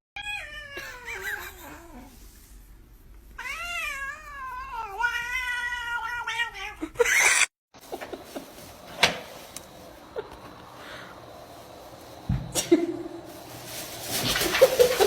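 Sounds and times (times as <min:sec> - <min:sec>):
cat caterwauling: 0:00.2 - 0:02.1, 0:03.4 - 0:07.5.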